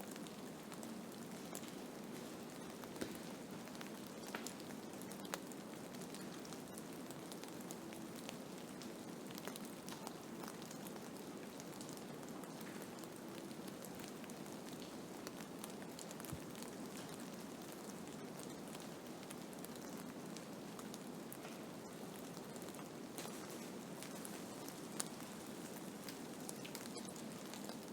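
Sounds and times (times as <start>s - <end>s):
small scattered ticks: 23.2s - 27.9s.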